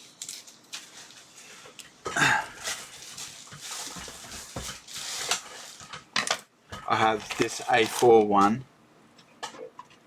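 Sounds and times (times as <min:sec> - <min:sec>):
packaging rustling and knocks: 0:02.8 - 0:08.4.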